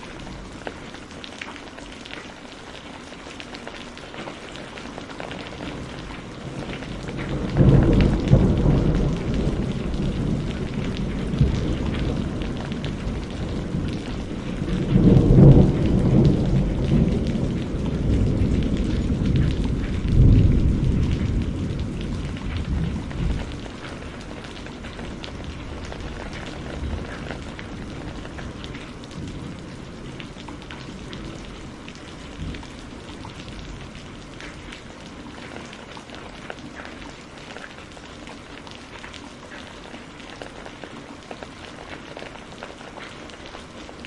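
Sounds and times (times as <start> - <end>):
steady rain falling: 0.0 - 44.0
thunder rumbling: 5.2 - 35.0.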